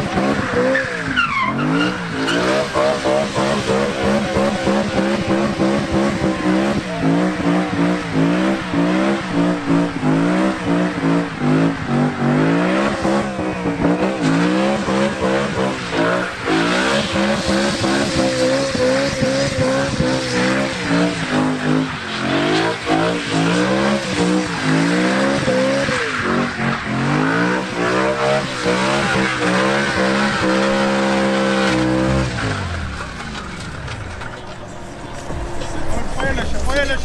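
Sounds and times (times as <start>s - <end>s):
car engine revving: 0.0s - 37.0s
tyres squealing: 0.2s - 8.3s.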